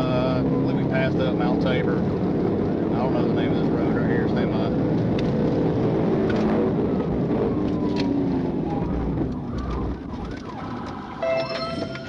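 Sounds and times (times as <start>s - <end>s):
engine and road noise: 0.0s - 12.0s
police siren wailing: 6.8s - 12.0s
brief electronic tone: 11.2s - 12.0s.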